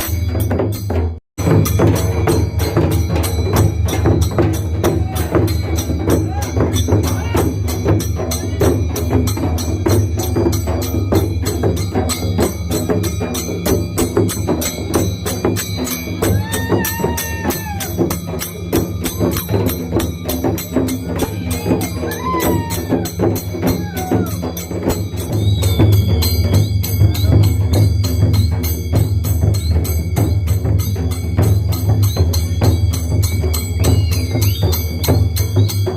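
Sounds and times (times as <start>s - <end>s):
drums beating: 0.0s - 35.9s
rapid metallic jingling: 0.0s - 35.9s
people shouting: 16.2s - 18.2s, 21.0s - 24.6s.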